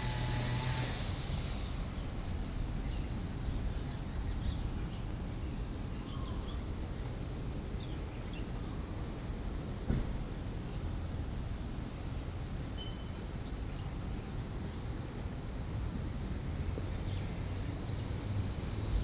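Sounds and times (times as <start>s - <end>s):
low outdoor rumble: 0.0s - 19.0s
small birds chirping: 1.5s - 8.8s, 12.8s - 14.4s
brief thump: 9.8s - 10.2s.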